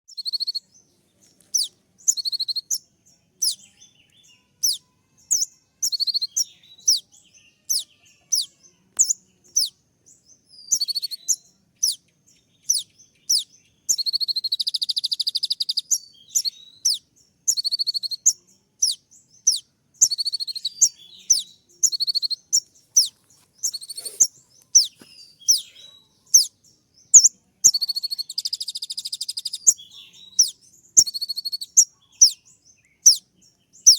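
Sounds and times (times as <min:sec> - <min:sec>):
bird trilling: 0:00.1 - 0:00.6, 0:01.5 - 0:02.8, 0:04.3 - 0:09.8, 0:10.7 - 0:12.0, 0:12.6 - 0:32.4, 0:33.0 - 0:33.9
bird chirping: 0:00.1 - 0:33.9.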